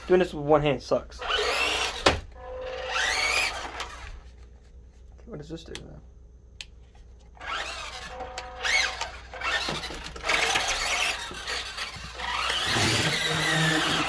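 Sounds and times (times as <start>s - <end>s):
electric motor whining: 1.2s - 4.2s, 7.4s - 14.0s.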